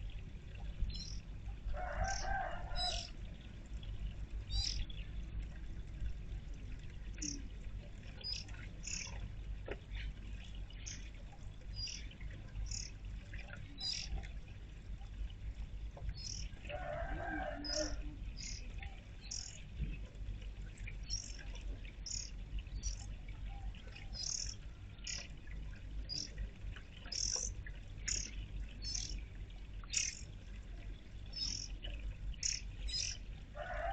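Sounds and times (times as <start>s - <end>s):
steady low rumble: 0.0s - 16.7s
songbirds chirping: 0.1s - 33.5s
lower longer bird sound: 2.0s - 3.2s, 4.5s - 5.0s, 8.1s - 9.2s, 13.8s - 14.2s, 17.6s - 19.6s, 22.0s - 25.3s, 27.0s - 29.2s, 29.9s - 30.3s, 31.3s - 31.8s, 32.4s - 33.2s.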